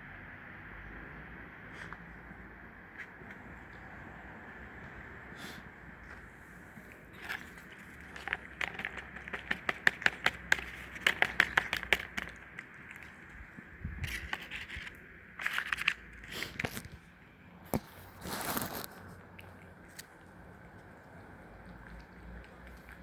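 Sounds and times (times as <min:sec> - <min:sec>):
rustling: 0:06.0 - 0:17.0, 0:17.8 - 0:19.1.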